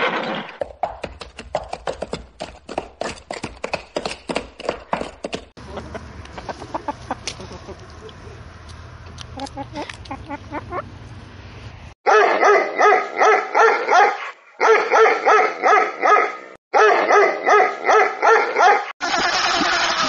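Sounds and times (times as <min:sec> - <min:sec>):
dog barking rapidly: 0:12.1 - 0:18.9.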